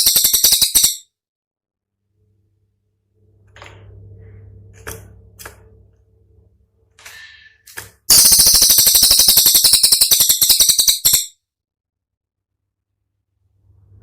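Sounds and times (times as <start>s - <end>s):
songbird rapid rattling trill: 0.0s - 1.0s, 8.1s - 11.4s.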